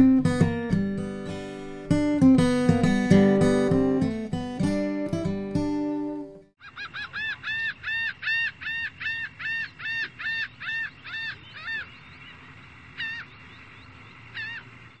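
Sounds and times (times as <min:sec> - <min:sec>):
bird honking calls: 0:06.6 - 0:15.0.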